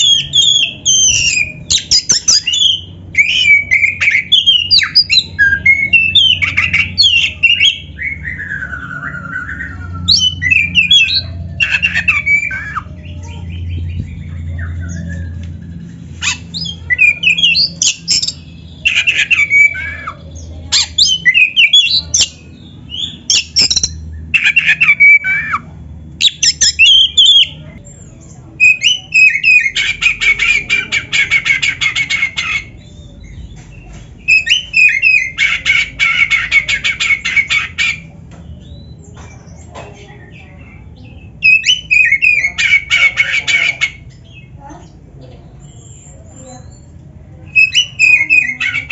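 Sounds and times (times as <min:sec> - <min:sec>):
bird singing whistled phrases: 0:00.0 - 0:13.8, 0:16.2 - 0:27.6, 0:28.6 - 0:30.7, 0:34.3 - 0:37.6, 0:41.2 - 0:42.9, 0:45.6 - 0:48.9.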